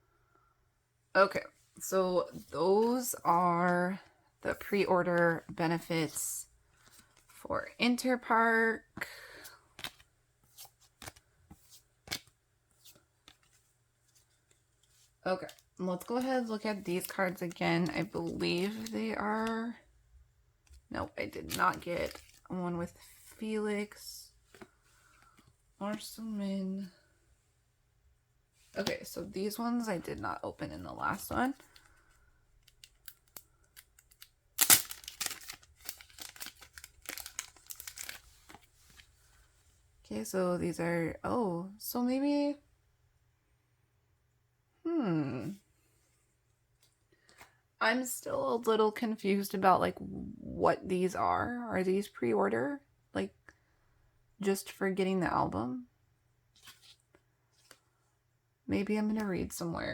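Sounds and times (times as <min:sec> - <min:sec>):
plastic crinkling: 0:31.0 - 0:39.4
photocards clicking and rustling: 0:31.2 - 0:38.7
plastic packaging ripping: 0:32.7 - 0:38.6.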